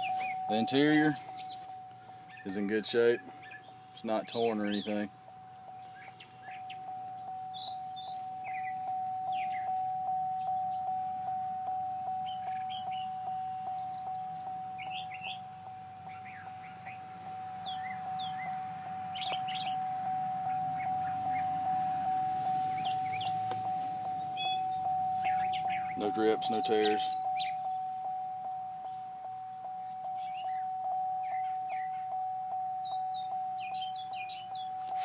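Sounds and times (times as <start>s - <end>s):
birds chirping: 0.0s - 35.0s
pulsing electronic tone: 6.8s - 35.0s.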